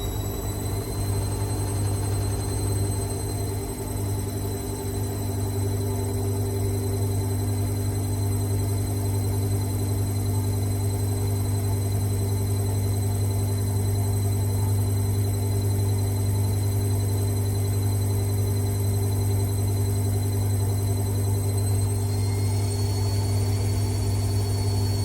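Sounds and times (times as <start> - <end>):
machine humming with high whine: 0.0 - 25.0.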